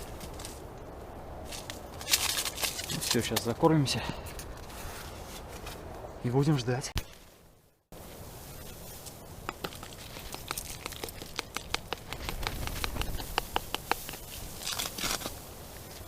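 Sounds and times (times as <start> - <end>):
small dry clicks: 9.5 - 15.3.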